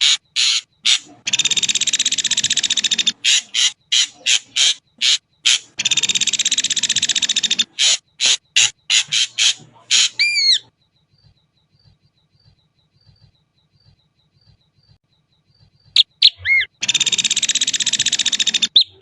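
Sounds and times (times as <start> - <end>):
bird buzzing rattles: 0.0 - 10.1, 16.8 - 18.8
bird harsh calls: 0.0 - 10.7, 15.6 - 19.0
bird whistled notes: 15.8 - 19.0.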